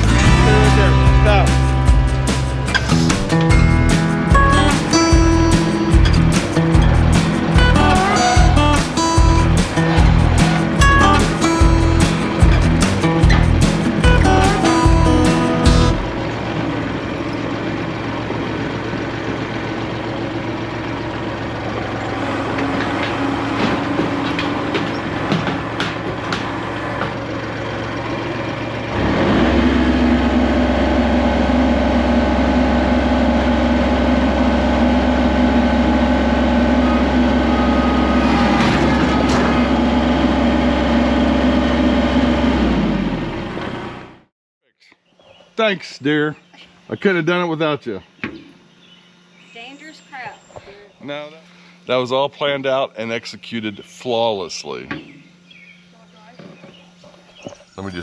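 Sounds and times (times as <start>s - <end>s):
engine running and revving: 0.0s - 44.3s
knocks and rattles: 1.8s - 16.0s, 22.1s - 27.3s.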